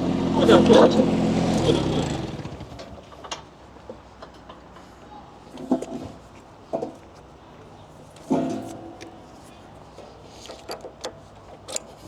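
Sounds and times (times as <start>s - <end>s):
mechanical clicks and clanks: 10.4s - 12.0s.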